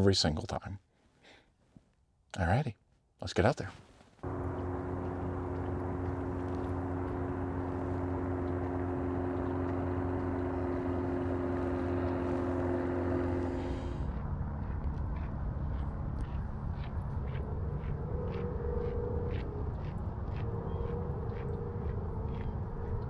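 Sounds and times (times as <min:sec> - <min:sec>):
low hum: 0:04.2 - 0:14.1
steady engine tones: 0:04.2 - 0:14.1.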